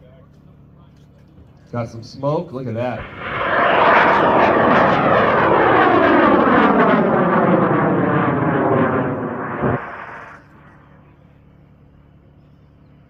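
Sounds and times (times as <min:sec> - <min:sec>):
rocket motor roaring: 0:02.9 - 0:10.7.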